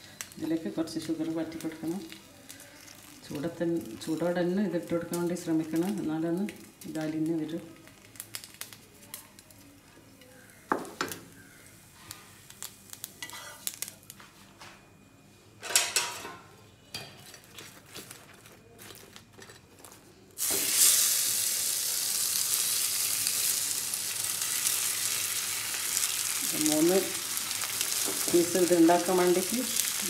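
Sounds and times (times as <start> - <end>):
pastry sizzling in hot oil: 0.0 - 14.2, 20.4 - 30.0.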